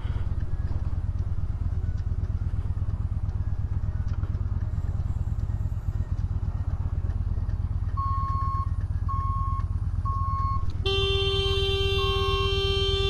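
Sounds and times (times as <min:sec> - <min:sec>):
motorcycle engine rumbling: 0:00.0 - 0:13.0
vehicle horn blast: 0:10.8 - 0:13.0.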